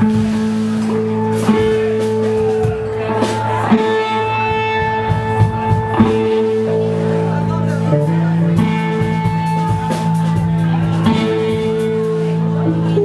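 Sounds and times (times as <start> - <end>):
drum or cymbal hits: 0.0 - 6.6
live amplified band music: 0.0 - 13.0.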